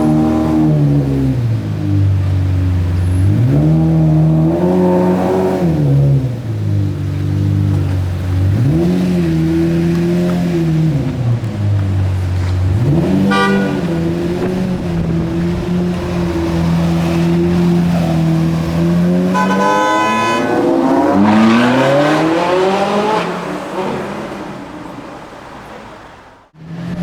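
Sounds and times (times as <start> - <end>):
sports car engine droning: 0.0 - 25.8
car horn honking: 12.9 - 22.0.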